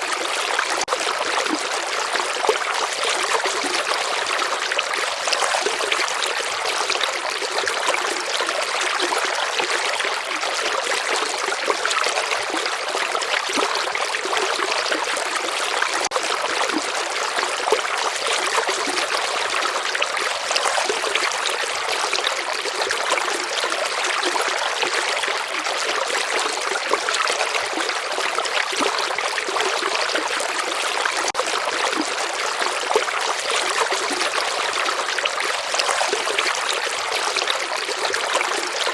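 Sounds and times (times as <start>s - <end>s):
stream of water flowing: 0.0s - 38.9s.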